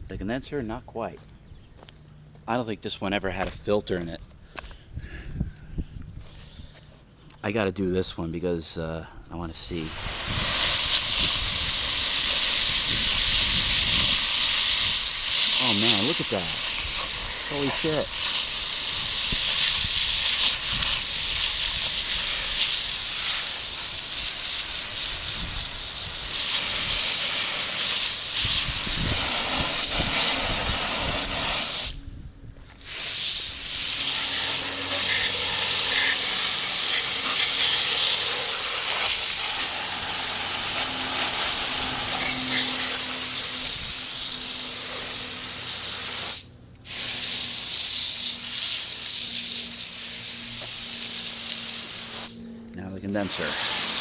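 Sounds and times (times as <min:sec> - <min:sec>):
hose spraying water: 0:09.5 - 0:32.0, 0:32.7 - 0:52.4, 0:53.1 - 0:54.0.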